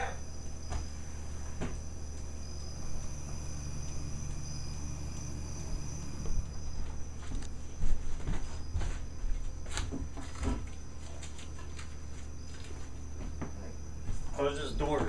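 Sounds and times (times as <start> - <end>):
high-pitched whine: 0.0 - 9.6
low electrical hum: 0.0 - 15.0.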